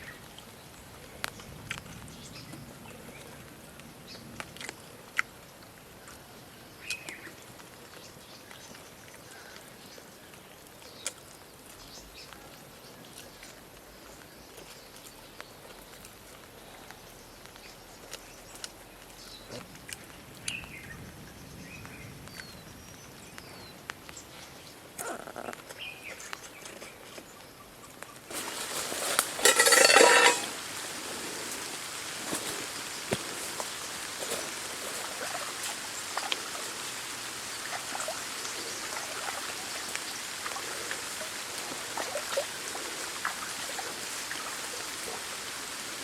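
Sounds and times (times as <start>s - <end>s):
steady rushing hiss: 28.3s - 46.0s.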